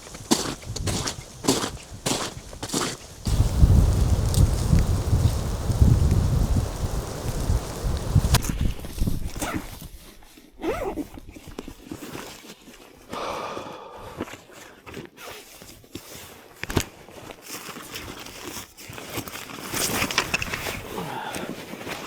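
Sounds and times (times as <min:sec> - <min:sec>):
footsteps crunching through snow: 0:00.0 - 0:10.2.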